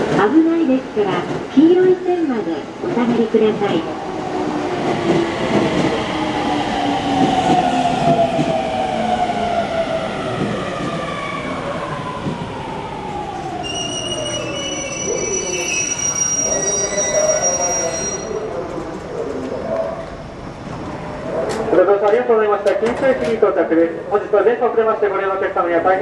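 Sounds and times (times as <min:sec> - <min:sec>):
brake squeal: 0:13.6 - 0:18.4.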